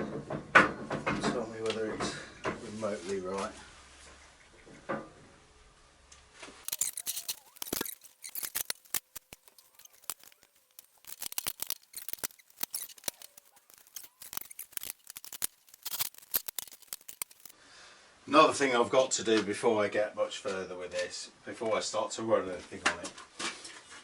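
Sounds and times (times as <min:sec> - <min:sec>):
sharp metal clicks and scrapes: 0:06.6 - 0:17.6.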